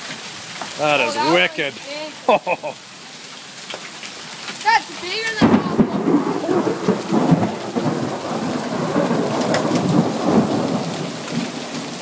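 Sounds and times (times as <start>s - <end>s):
raindrops clicking nearby: 0.0s - 0.8s, 3.3s - 12.0s
heavy rain: 0.0s - 12.0s.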